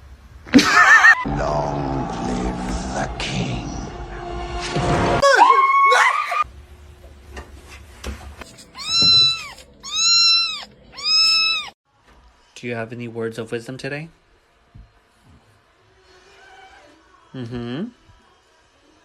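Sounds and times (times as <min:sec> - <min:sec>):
cat meowing: 0:08.6 - 0:11.8
short gliding cat cries: 0:08.6 - 0:11.8.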